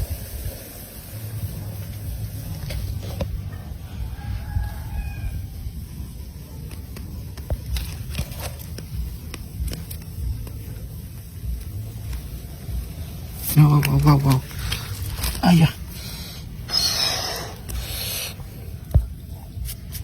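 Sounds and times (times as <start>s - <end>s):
steady low rumble: 0.0s - 20.0s
faint drawn-out pitched call: 16.7s - 18.4s.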